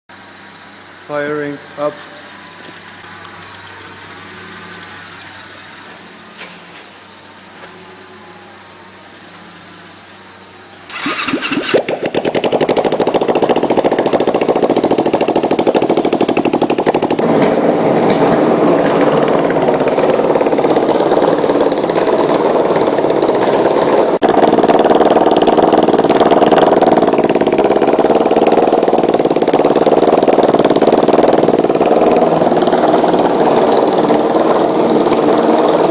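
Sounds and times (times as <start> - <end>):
motorcycle engine running loud: 10.9 - 35.9.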